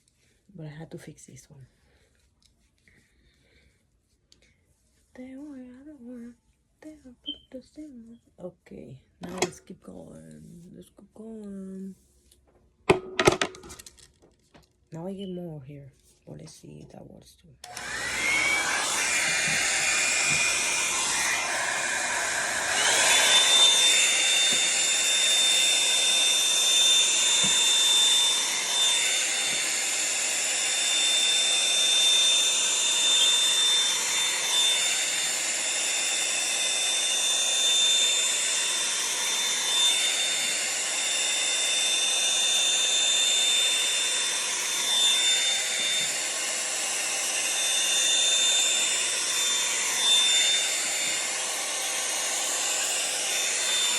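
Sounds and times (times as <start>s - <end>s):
hot-air brush dryer running: 9.2s - 9.6s, 17.6s - 53.9s.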